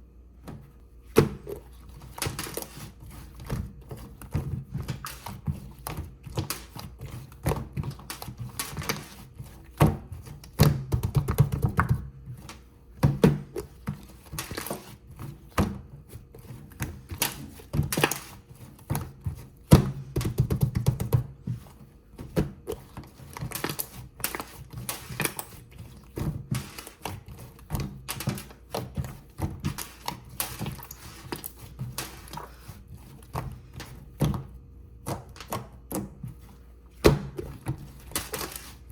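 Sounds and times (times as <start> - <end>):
kitchen utensils tapping and scraping: 16.5 - 36.4, 37.3 - 38.9.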